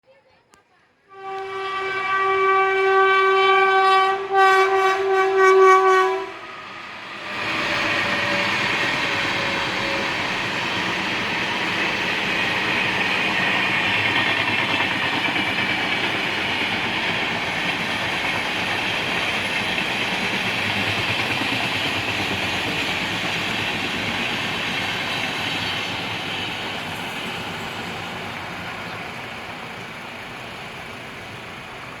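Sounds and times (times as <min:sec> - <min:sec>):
train horn blast: 0:01.1 - 0:10.2
train wheels on rails: 0:01.2 - 0:32.0.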